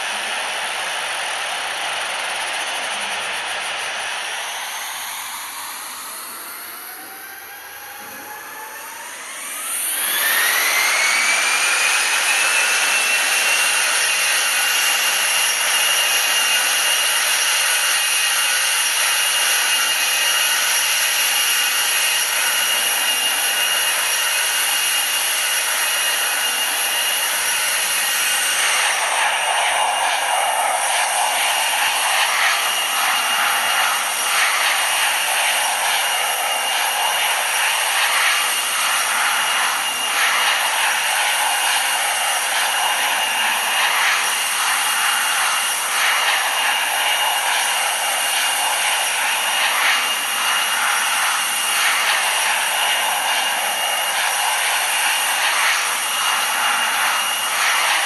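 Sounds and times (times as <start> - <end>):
jet engines spooling up: 0.0 - 58.0
loud rushing noise: 27.5 - 58.0.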